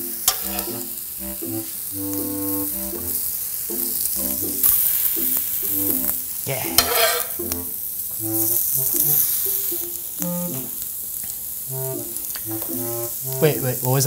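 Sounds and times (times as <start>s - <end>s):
background music: 0.0s - 10.9s, 11.7s - 14.0s
sausage patties sizzling on griddle: 0.0s - 14.0s
metal spatula flipping: 0.2s - 0.9s, 4.6s - 7.5s.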